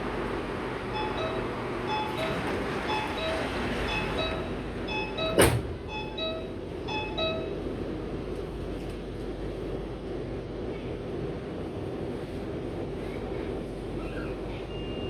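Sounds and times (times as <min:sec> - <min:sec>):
train rumble: 0:00.0 - 0:15.0
two-note door warning chime: 0:00.9 - 0:07.6
sliding doors thumping shut: 0:05.2 - 0:05.9.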